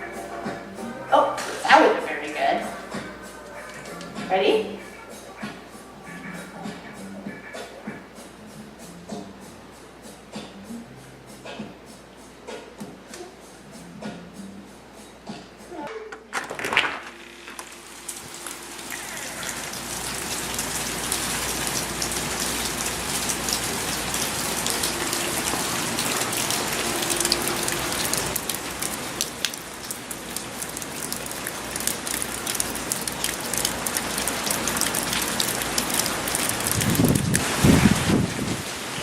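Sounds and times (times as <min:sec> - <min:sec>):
heavy rain pouring: 0:16.5 - 0:39.0.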